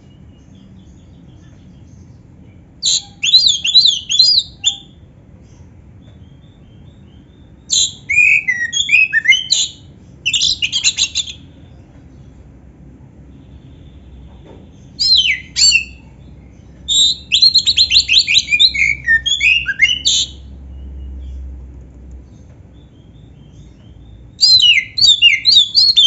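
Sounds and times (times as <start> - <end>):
bird singing whistled phrases: 2.8 - 5.0, 7.1 - 11.5, 14.9 - 16.1, 16.9 - 20.5, 24.4 - 26.0.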